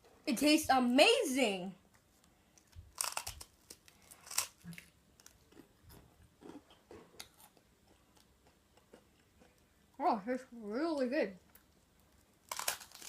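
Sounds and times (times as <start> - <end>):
person chewing food: 1.9 - 10.0, 11.4 - 13.0.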